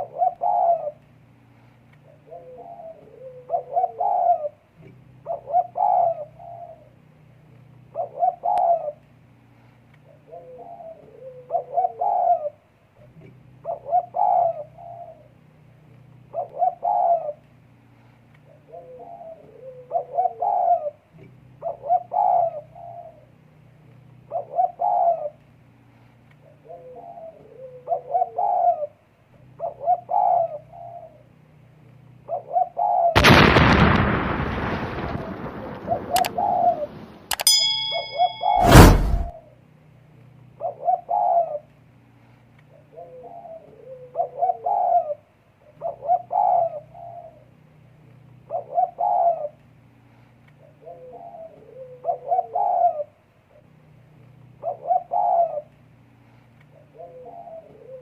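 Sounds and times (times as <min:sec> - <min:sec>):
dove cooing: 0:00.0 - 0:01.0, 0:02.1 - 0:06.9, 0:07.9 - 0:09.0, 0:10.1 - 0:12.6, 0:13.6 - 0:15.3, 0:16.3 - 0:17.4, 0:18.5 - 0:23.3, 0:24.3 - 0:25.4, 0:26.4 - 0:29.0, 0:29.6 - 0:31.2, 0:32.3 - 0:33.2, 0:35.5 - 0:37.0, 0:40.6 - 0:41.7, 0:42.7 - 0:47.4, 0:48.5 - 0:49.6, 0:50.6 - 0:53.2, 0:54.6 - 0:55.7, 0:56.7 - 0:58.0
loud ringing clang: 0:37.3 - 0:39.3.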